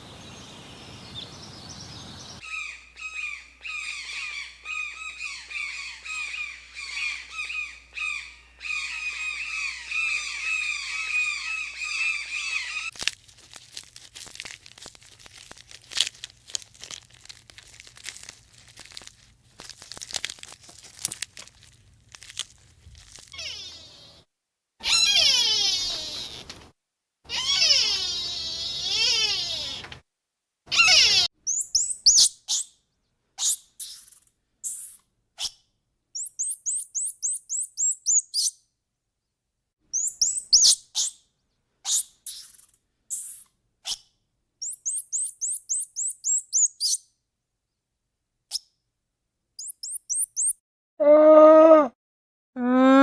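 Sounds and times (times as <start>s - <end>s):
small bird chirping: 0.0s - 13.0s, 21.3s - 26.6s, 27.3s - 30.0s, 30.7s - 32.8s, 33.4s - 35.6s, 36.2s - 38.6s, 39.9s - 41.3s, 41.9s - 47.1s, 49.6s - 50.6s
cat meowing: 23.4s - 24.2s, 24.8s - 26.5s, 27.3s - 30.0s, 30.7s - 31.3s
cow mooing: 51.0s - 52.0s, 52.6s - 53.0s.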